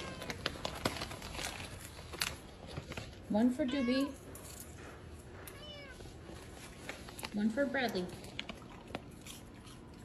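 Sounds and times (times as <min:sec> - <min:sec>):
cat claws on tile floor: 0:00.0 - 0:04.8.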